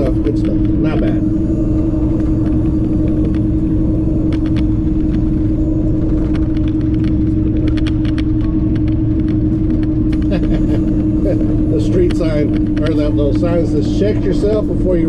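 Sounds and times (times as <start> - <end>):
truck diesel engine droning: 0.0 - 15.0.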